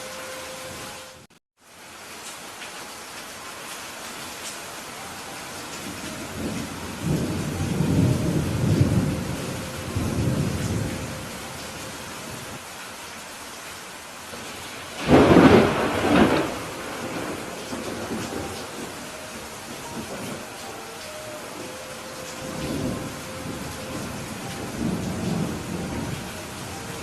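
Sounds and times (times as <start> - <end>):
steady rain: 0.0 - 27.0
rolling thunder: 5.8 - 12.6, 14.4 - 20.5, 22.3 - 27.0
sharp thunder clap: 15.0 - 18.9.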